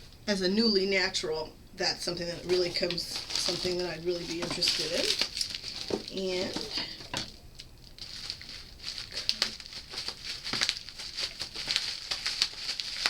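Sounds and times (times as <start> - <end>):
bubble wrap crinkling: 2.2 - 13.0.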